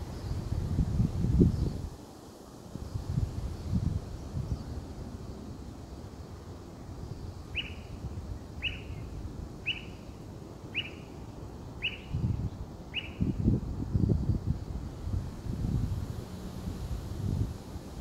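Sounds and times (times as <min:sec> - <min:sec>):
wind rumbling on microphone: 0:00.0 - 0:18.0
small bird chirping: 0:07.0 - 0:08.0, 0:08.6 - 0:11.2, 0:11.8 - 0:13.4.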